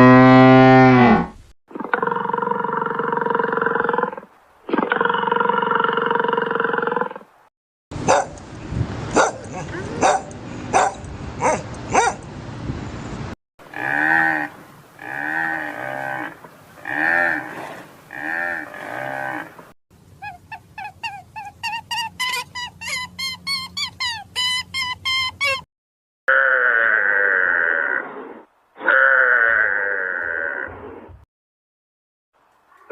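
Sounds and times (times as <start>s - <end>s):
cow mooing: 13.7s - 19.5s
pitched animal calls: 20.2s - 25.7s, 26.3s - 31.0s
harsh noisy animal calls: 26.3s - 31.1s.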